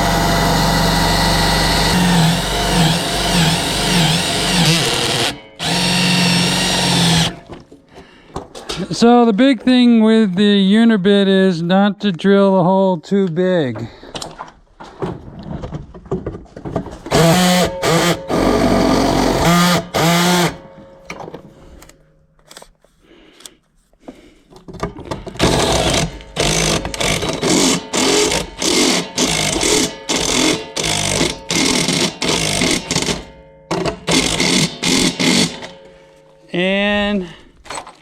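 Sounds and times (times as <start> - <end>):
power drill cutting sheet metal: 0.0 - 7.5, 17.1 - 20.7, 25.4 - 35.9.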